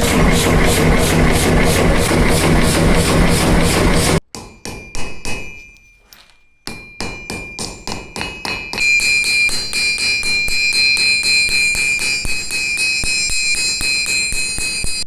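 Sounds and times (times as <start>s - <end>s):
dense pulsing noise: 0.0s - 4.2s
hammer striking iron on anvil: 0.0s - 5.9s, 6.6s - 15.0s.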